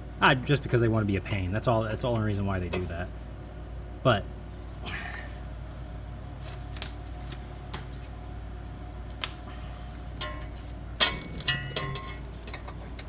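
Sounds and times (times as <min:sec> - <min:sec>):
shop fan humming: 0:00.0 - 0:13.0
sharp metal clanks: 0:10.2 - 0:12.9
metal tools clinking on steel: 0:10.2 - 0:13.0.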